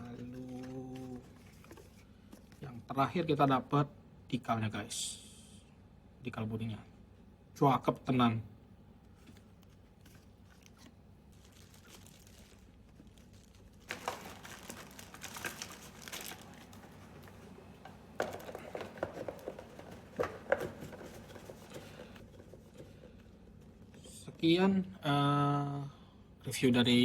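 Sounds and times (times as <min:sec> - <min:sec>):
plastic packaging crinkling: 0:09.2 - 0:22.7.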